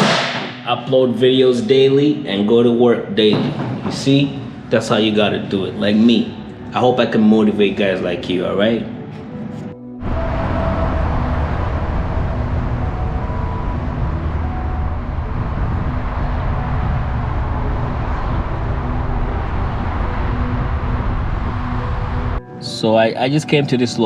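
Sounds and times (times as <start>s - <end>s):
road noise: 3.1s - 22.7s
car engine: 10.0s - 22.4s.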